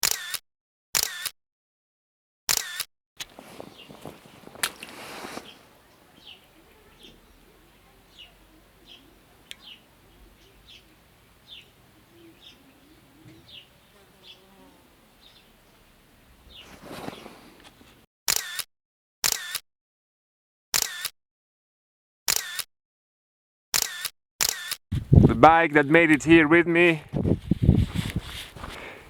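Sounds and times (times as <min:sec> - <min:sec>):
camera shutter clicks: 0:00.0 - 0:00.4, 0:01.0 - 0:01.3, 0:02.5 - 0:03.3, 0:18.3 - 0:19.6, 0:20.8 - 0:21.1, 0:22.3 - 0:22.7, 0:23.8 - 0:24.8
small bird chirping: 0:03.6 - 0:04.6, 0:05.3 - 0:15.8, 0:16.5 - 0:17.3.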